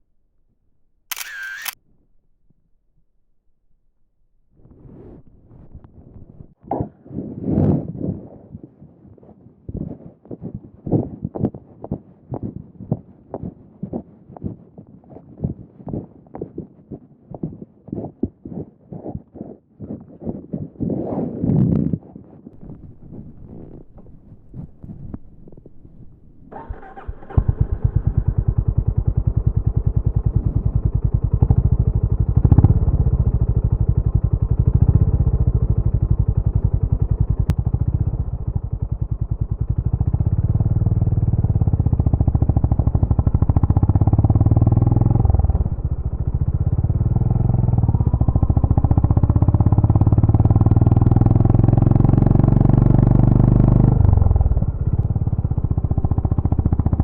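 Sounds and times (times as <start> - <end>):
motorcycle engine running and revving: 22.6 - 57.0.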